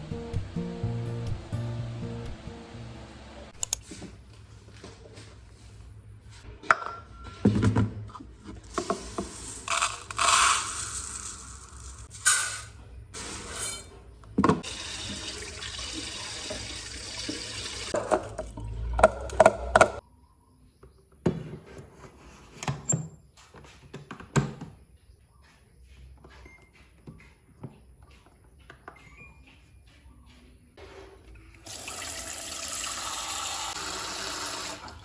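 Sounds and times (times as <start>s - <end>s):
water running: 14.6s - 20.0s, 31.6s - 35.0s.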